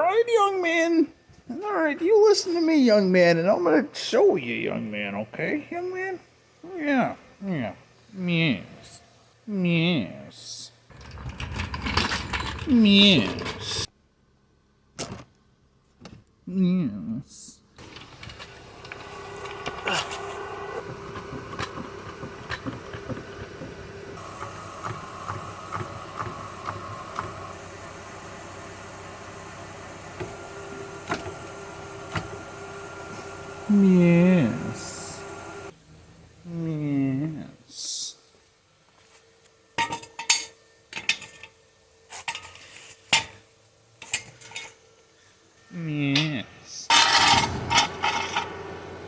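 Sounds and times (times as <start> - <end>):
metal tools clanking: 10.9 - 13.9, 17.8 - 23.7, 39.8 - 43.4, 44.0 - 44.8, 46.9 - 48.6.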